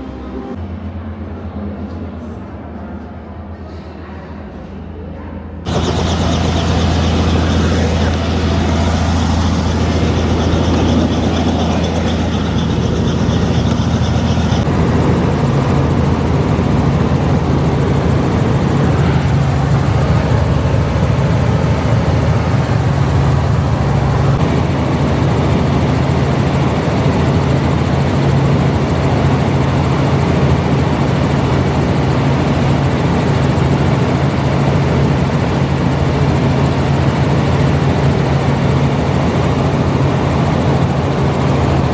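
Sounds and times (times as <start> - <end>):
high hiss: 5.7 - 14.6
vehicle engine humming: 5.7 - 24.4.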